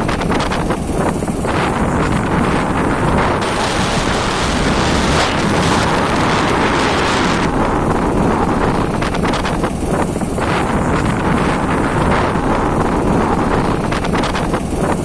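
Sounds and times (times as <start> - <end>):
motorbike running noise: 0.0 - 15.0
wind buffeting microphone: 0.0 - 15.0.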